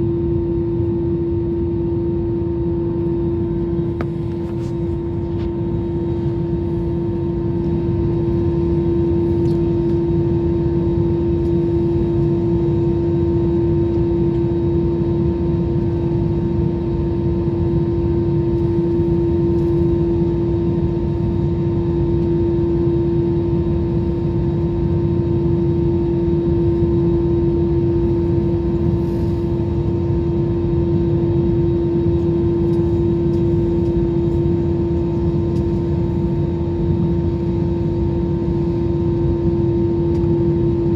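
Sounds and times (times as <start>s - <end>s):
constant hum: 0.0s - 40.9s
jet engine drone: 0.0s - 40.9s
airflow rumble: 2.1s - 13.1s, 17.4s - 21.8s, 26.6s - 40.9s.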